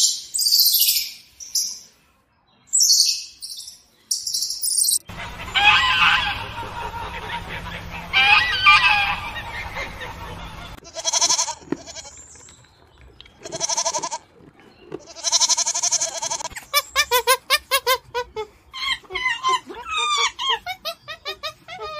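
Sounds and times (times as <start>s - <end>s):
mallard ducks calling: 5.1s - 11.6s
sheep bleating: 10.8s - 12.1s.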